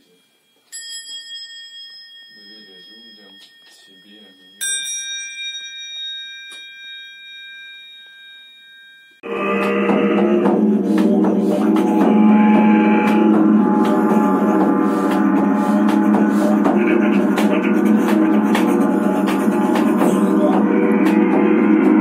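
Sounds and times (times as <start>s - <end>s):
hand percussion strikes and jingles: 0.0s - 12.0s
didgeridoos droning: 9.2s - 22.0s.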